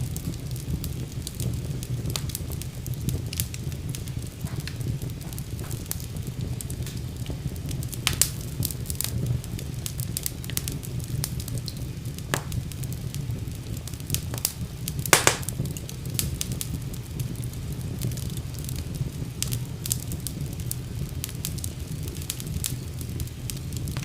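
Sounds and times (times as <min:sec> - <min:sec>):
wood fire crackling: 0:00.0 - 0:24.0
sharp pops and snaps: 0:08.0 - 0:08.4, 0:11.7 - 0:12.7, 0:14.2 - 0:15.9.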